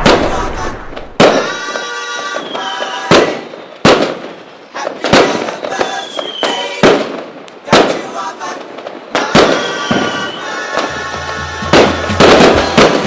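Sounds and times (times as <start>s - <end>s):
fireworks bangs: 0.0s - 13.0s
fireworks crackling: 0.0s - 13.0s
faint high falling whistle: 9.6s - 10.5s.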